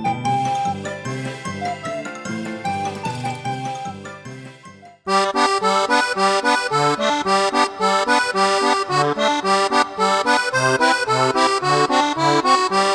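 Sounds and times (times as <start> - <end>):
upbeat accordion music: 4.3 - 12.9.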